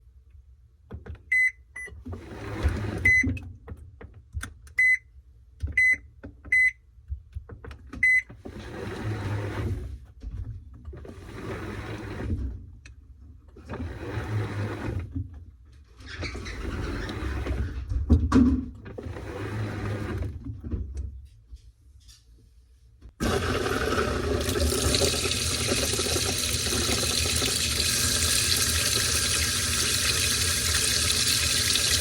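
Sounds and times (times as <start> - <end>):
washing machine beeps: 1.3 - 2.0, 2.9 - 3.3, 4.8 - 5.1, 5.8 - 6.8, 8.0 - 8.3.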